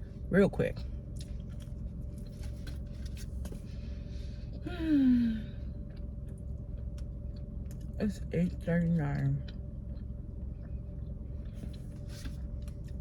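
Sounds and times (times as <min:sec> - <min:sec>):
steady low hum: 0:00.0 - 0:13.0
person sighing: 0:04.6 - 0:05.6.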